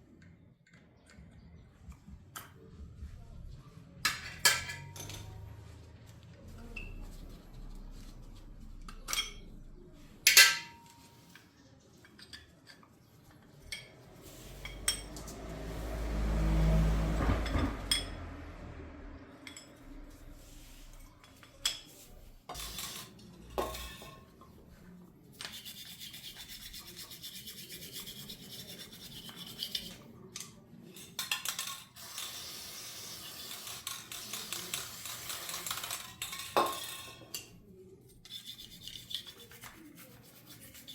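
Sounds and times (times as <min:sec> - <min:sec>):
metal tools clinking: 0:04.1 - 0:05.5, 0:08.9 - 0:09.6
rubbing scrubbing sound: 0:25.5 - 0:30.0, 0:38.2 - 0:40.9.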